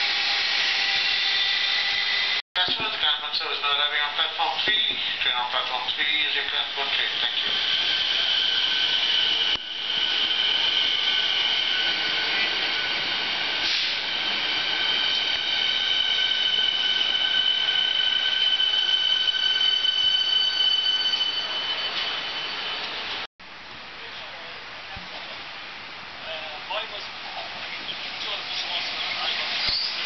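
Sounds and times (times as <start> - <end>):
train cars rumbling: 0.2 - 23.3, 27.1 - 30.0
train brake squeal: 6.9 - 23.1, 29.0 - 30.0.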